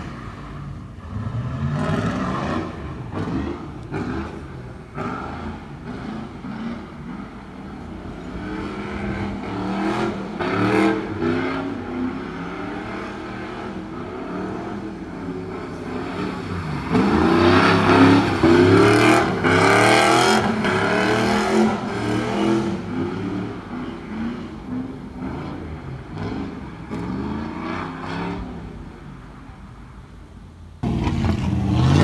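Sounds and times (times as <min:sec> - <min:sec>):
car engine revving hard: 0:00.0 - 0:28.6, 0:30.8 - 0:32.0.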